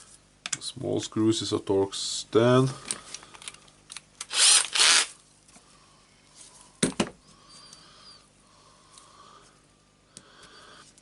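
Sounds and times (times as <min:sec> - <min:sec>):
electric screwdriver running: 0:04.2 - 0:05.1.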